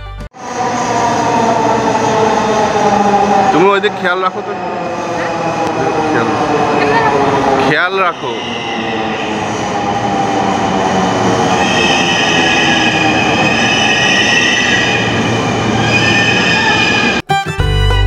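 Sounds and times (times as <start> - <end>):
train wheels rumbling on rail: 0.4 - 17.3
high squealing tones: 7.7 - 17.2.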